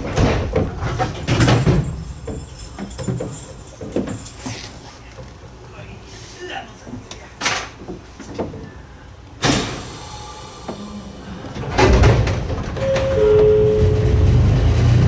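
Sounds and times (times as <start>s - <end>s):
train car rumbling and clanking: 0.0s - 15.0s
sliding train doors closing: 6.9s - 15.0s
two short tones: 12.8s - 14.4s.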